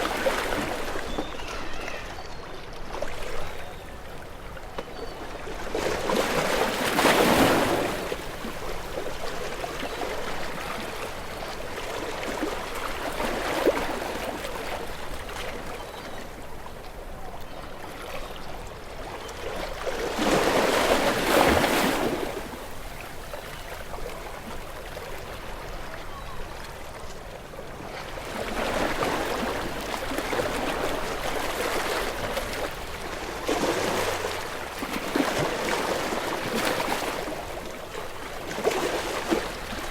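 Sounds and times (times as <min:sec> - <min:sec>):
ocean waves breaking: 0:19.6 - 0:23.0, 0:27.9 - 0:39.9.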